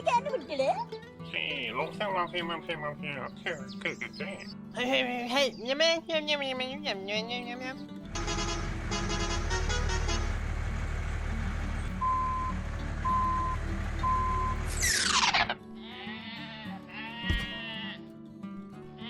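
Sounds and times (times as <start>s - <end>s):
bleating calls: 8.1s - 10.4s, 14.1s - 18.1s
truck horn: 8.1s - 15.0s
truck engine running: 8.1s - 15.6s
reversing beeps: 12.0s - 14.9s.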